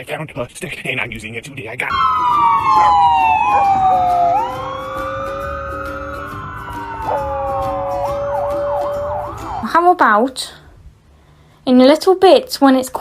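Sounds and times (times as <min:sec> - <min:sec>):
siren wailing: 0:01.9 - 0:09.8.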